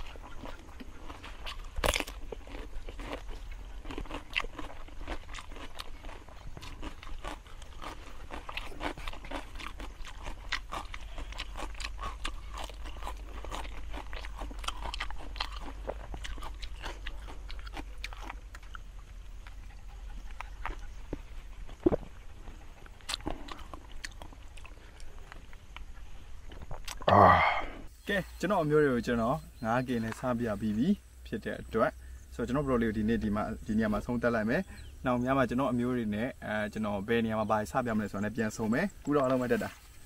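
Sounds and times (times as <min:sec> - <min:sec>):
person chewing crunchy food: 0:00.0 - 0:27.9.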